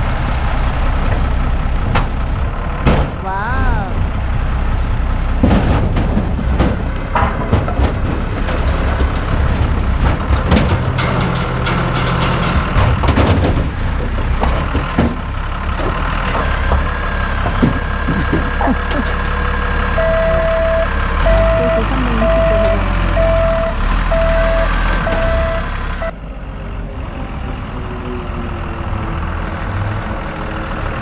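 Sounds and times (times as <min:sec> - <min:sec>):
forklift engine running: 0:00.0 - 0:31.0
firewood knocks and clunks: 0:05.4 - 0:11.2, 0:12.6 - 0:19.0
reversing beeper: 0:20.0 - 0:26.1.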